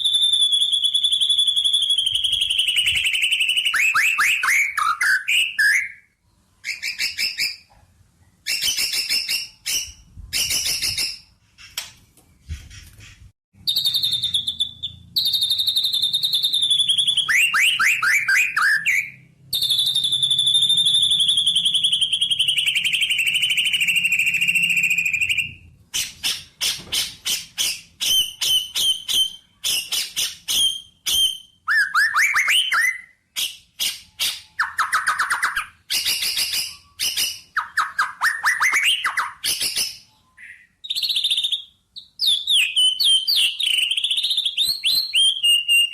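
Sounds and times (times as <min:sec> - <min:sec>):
songbird singing trills: 0:13.6 - 0:26.4, 0:27.3 - 0:45.9.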